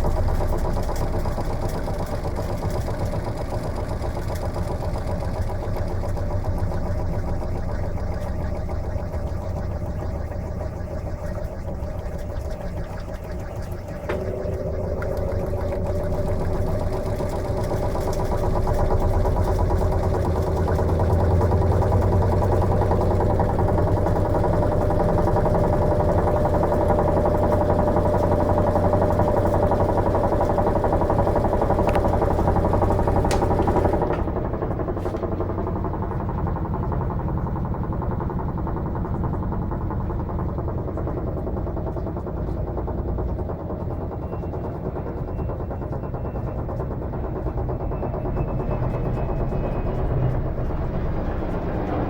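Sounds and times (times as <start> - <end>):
washing machine motor hum: 0.0 - 52.0
clicks: 32.9 - 34.3.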